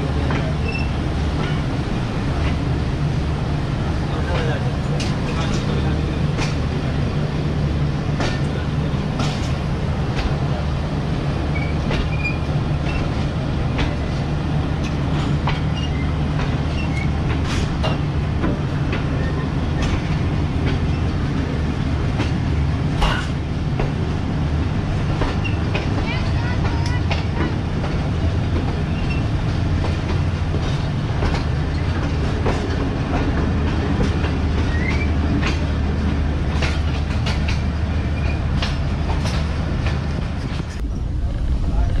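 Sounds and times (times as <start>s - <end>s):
wheels rumbling on rails: 0.0s - 42.0s
wheels clacking over rail joints: 14.8s - 24.2s, 24.8s - 42.0s.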